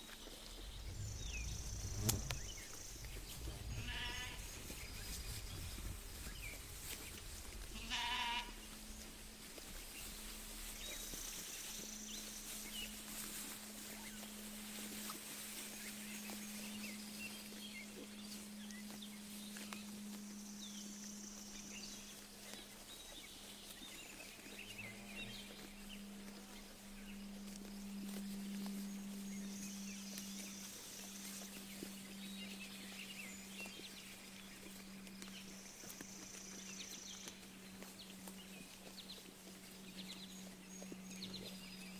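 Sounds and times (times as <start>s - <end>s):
birds chirping: 0.0s - 13.1s, 15.7s - 41.9s
low hum: 0.0s - 41.9s
sheep tearing and chewing grass: 0.0s - 41.9s
sheep bleating: 3.7s - 4.6s, 7.7s - 8.7s.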